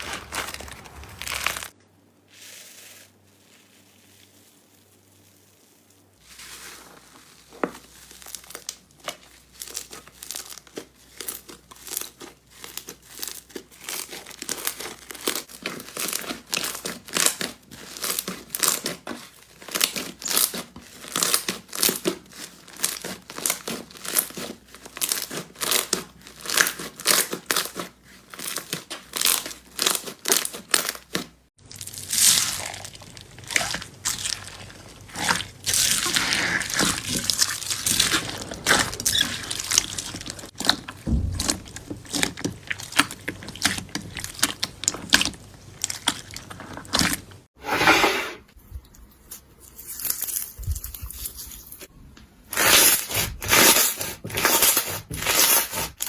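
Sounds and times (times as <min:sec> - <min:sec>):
slime crackling and popping: 0:00.0 - 0:01.8, 0:06.4 - 0:47.4.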